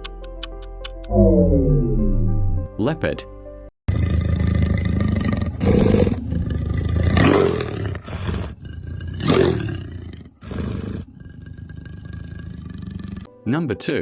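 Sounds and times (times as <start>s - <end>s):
leopard low growl: 3.9s - 13.3s
leopard roaring: 3.9s - 13.3s.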